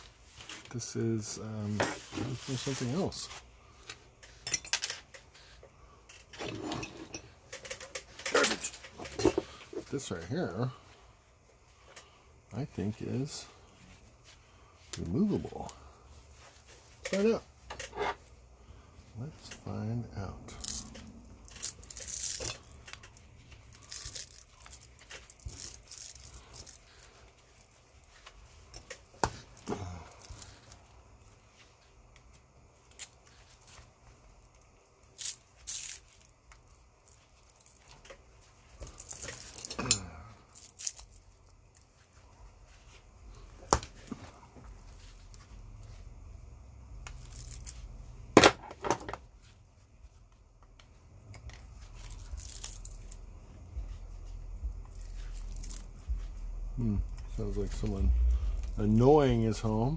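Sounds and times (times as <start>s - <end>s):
hand tools scraping and prying metal: 3.8s - 5.4s, 6.1s - 10.1s, 17.0s - 18.3s, 38.8s - 41.1s.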